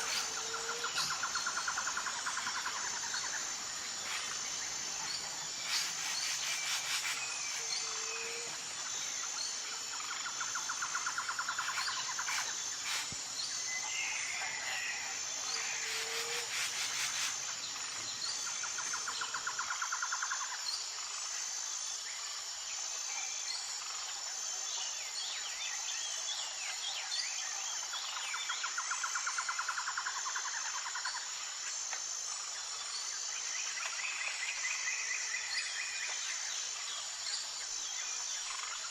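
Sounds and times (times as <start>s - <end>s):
insect trills: 0.0s - 38.9s
pulsing insect chorus: 0.0s - 38.9s.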